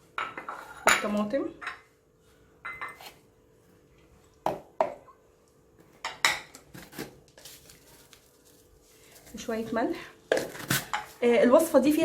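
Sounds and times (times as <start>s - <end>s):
kitchenware clinking and knocking: 0.1s - 1.9s, 2.6s - 3.2s, 6.0s - 6.7s.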